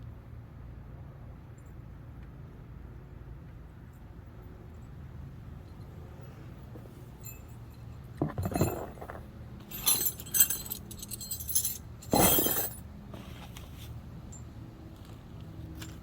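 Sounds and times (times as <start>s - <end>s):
metal tools clinking: 6.8s - 12.8s.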